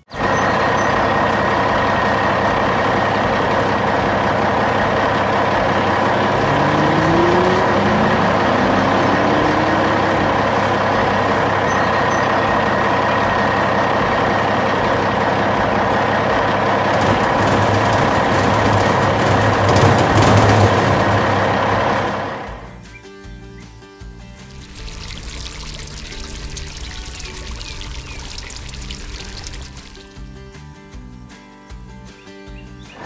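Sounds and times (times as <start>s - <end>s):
heavy vehicle engine running: 0.0s - 22.9s, 24.2s - 30.8s
rising tones: 5.0s - 11.4s.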